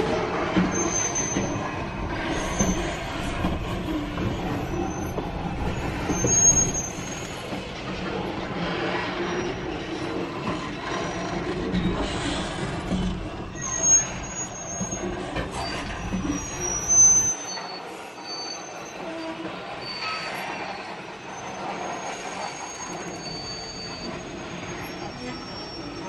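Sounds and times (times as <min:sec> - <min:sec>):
freight train rumbling past: 0:00.0 - 0:17.0
wheels squealing on rails: 0:00.0 - 0:26.0.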